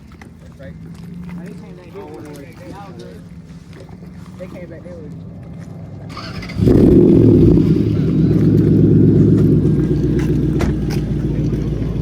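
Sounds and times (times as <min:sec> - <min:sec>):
car engine and exhaust rumbling: 0:03.0 - 0:12.0.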